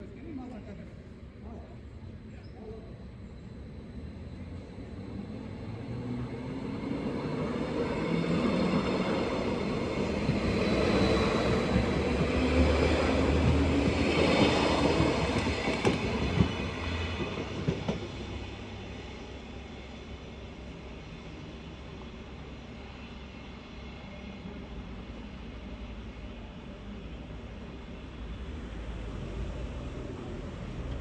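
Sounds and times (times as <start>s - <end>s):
train passing: 0.0s - 31.0s.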